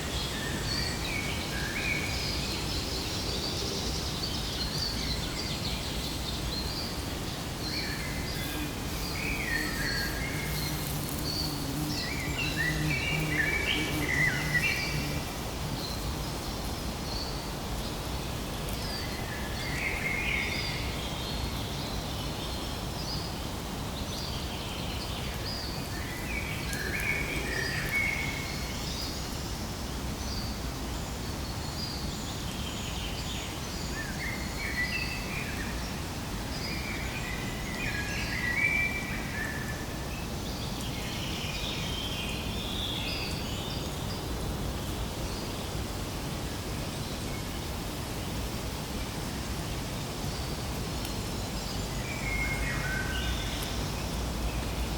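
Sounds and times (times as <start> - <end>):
steady background noise: 0.0 - 54.9
small birds chirping: 2.8 - 16.1.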